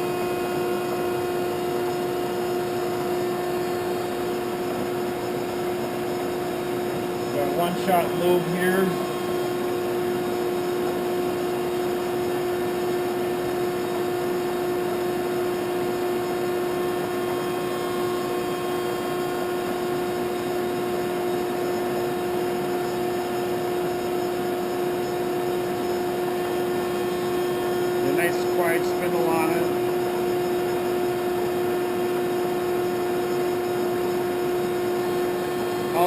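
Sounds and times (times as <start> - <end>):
grinder humming: 0.0 - 22.1, 23.5 - 36.0.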